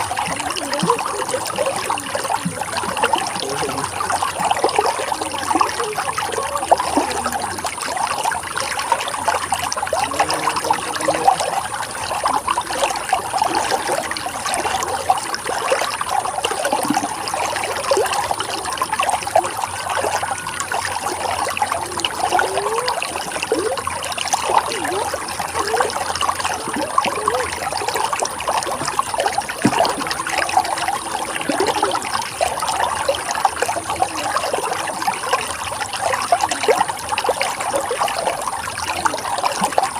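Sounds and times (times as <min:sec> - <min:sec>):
water trickling and gurgling: 0:00.0 - 0:39.9.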